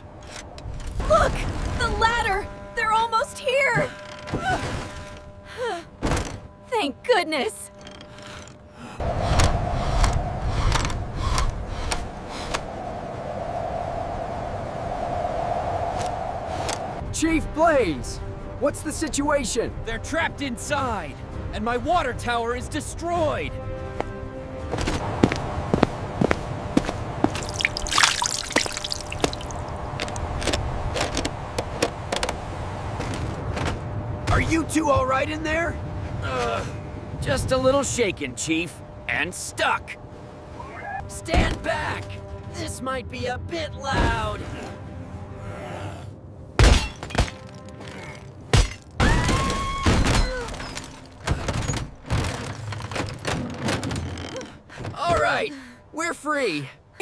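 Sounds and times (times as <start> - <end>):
background music: 0.0 - 12.0, 16.8 - 30.9, 32.5 - 54.1
water trickling and dripping: 27.2 - 30.4
heavy water splash: 27.3 - 29.7
knocks and clatter: 50.0 - 55.0.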